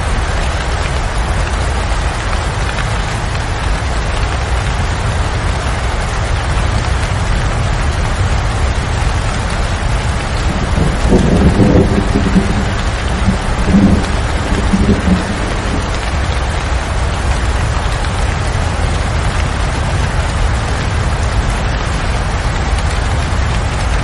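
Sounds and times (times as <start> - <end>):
steady rain: 0.0 - 24.0
thunder rumbling: 8.6 - 24.0.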